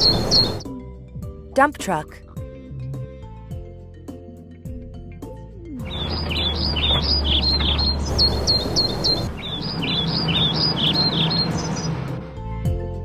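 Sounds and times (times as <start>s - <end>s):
small birds chirping: 0.0s - 0.6s, 5.8s - 12.1s.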